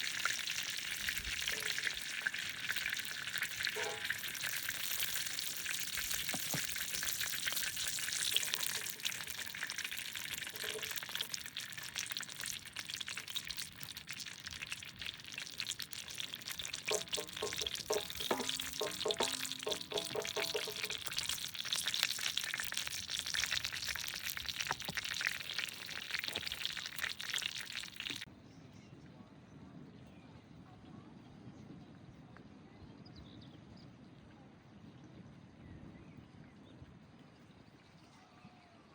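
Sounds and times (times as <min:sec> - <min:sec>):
food sizzling in a pan: 0:00.0 - 0:28.3.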